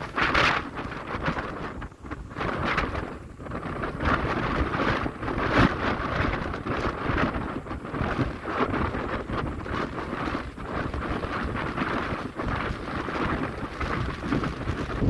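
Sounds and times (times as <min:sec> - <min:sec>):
sea: 0:00.0 - 0:15.0
wind buffeting microphone: 0:00.0 - 0:15.0.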